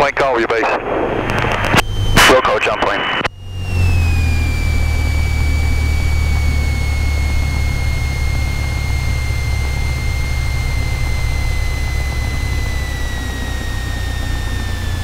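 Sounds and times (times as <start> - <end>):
high whine dropping in pitch: 0.0 - 15.0
propeller plane engine drone: 0.0 - 15.0.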